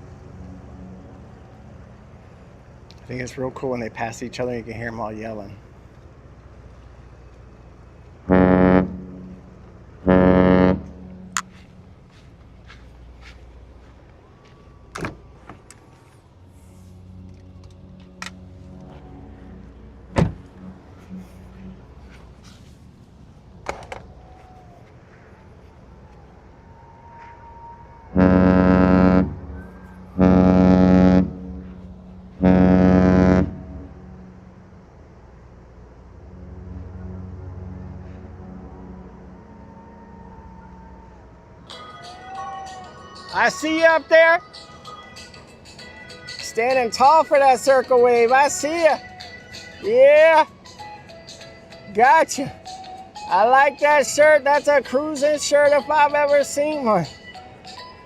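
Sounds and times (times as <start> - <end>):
ship horn blasts: 0.0 - 3.4, 6.8 - 12.2, 16.4 - 24.4, 26.1 - 44.6.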